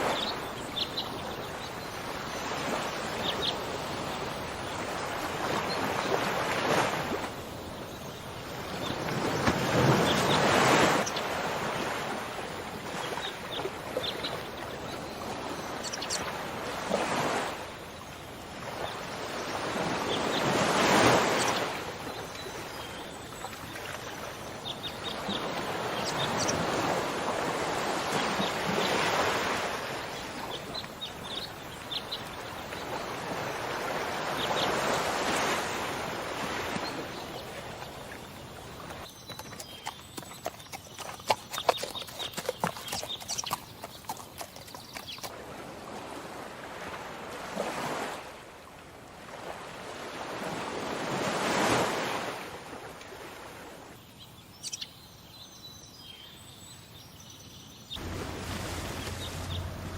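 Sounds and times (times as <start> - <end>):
horse hooves clip-clopping: 39.2 - 45.3.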